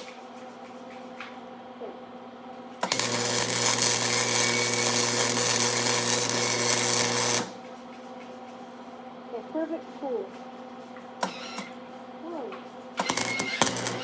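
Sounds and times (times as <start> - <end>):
electrical hum: 0.0 - 14.0
arc welder crackling hiss: 2.8 - 7.6, 11.2 - 11.7, 13.0 - 14.0.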